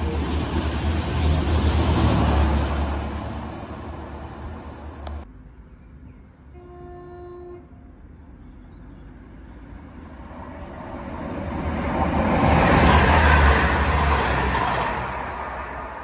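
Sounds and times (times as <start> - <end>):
train passing with rail noise: 0.0 - 16.0
train horn note: 6.5 - 7.8.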